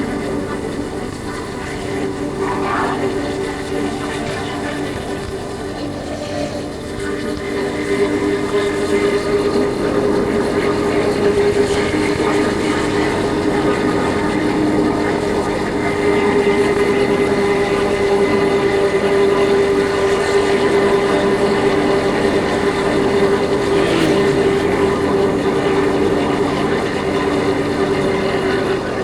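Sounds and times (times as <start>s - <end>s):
motorcycle engine running: 19.7s - 29.0s.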